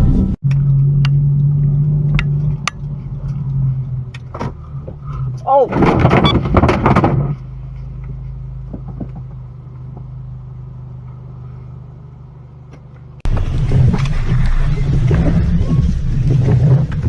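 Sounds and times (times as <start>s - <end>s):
engine and road noise: 0.0s - 17.0s
low vehicle hum: 0.0s - 17.0s
car collision clatter: 5.6s - 7.5s.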